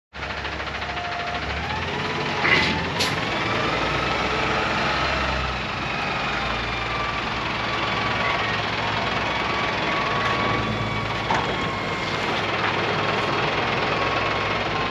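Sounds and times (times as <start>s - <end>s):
truck engine humming: 0.2s - 14.9s.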